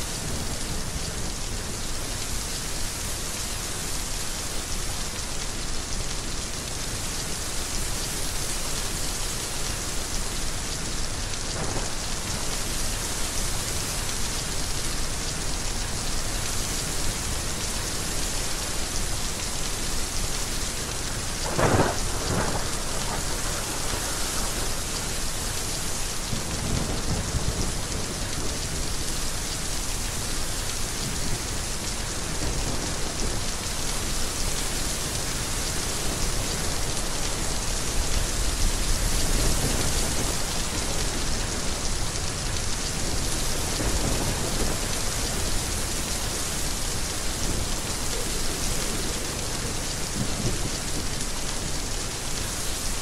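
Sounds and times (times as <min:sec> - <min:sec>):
heavy rain falling: 0:00.0 - 0:53.0
low rolling thunder: 0:21.4 - 0:25.3.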